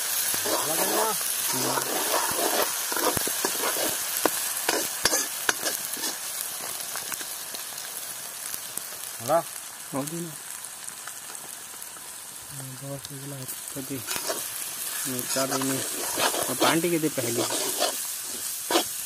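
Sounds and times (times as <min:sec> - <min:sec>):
vegetables sizzling in hot oil: 0:00.0 - 0:19.0
metal ladle scraping pan: 0:00.4 - 0:04.0, 0:04.7 - 0:06.2, 0:14.0 - 0:19.0.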